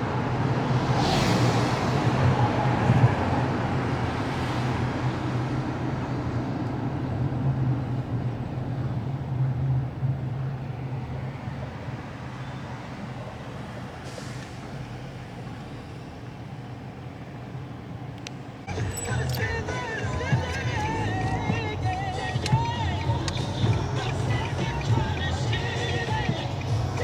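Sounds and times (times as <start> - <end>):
large engine humming: 18.1 - 27.0.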